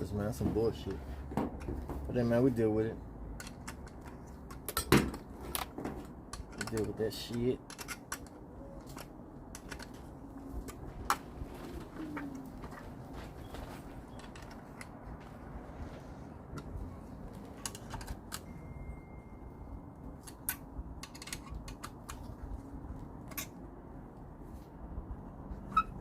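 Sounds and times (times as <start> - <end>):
low background noise: 0.0 - 26.0
small clicks and taps of parts: 3.4 - 11.2, 20.2 - 22.3.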